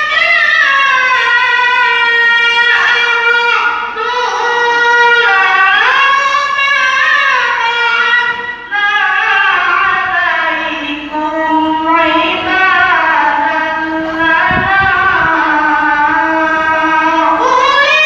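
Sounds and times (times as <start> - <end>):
girl reciting melodically: 0.0 - 18.0.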